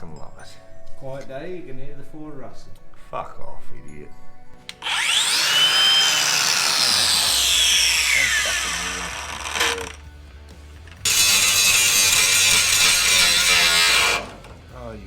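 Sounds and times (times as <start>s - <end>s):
power tool spinning up and winding down: 4.8s - 10.0s, 10.9s - 14.5s.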